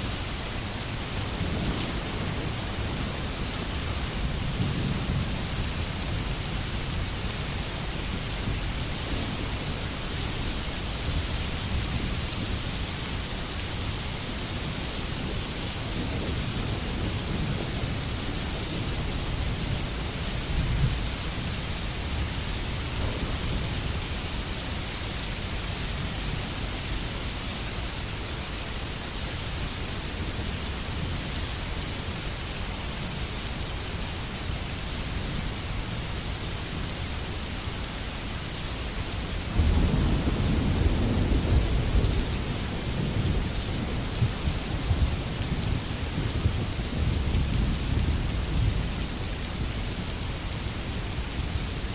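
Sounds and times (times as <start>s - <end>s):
heavy rain hissing: 0.0s - 51.9s
thunder rumbling: 14.7s - 24.0s, 39.5s - 49.0s.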